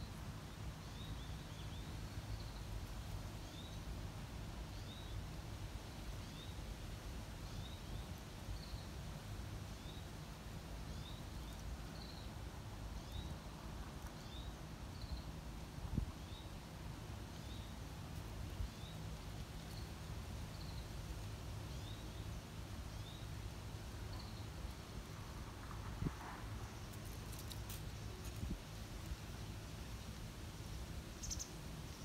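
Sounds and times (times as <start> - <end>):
small bird chirping: 31.2 - 32.0.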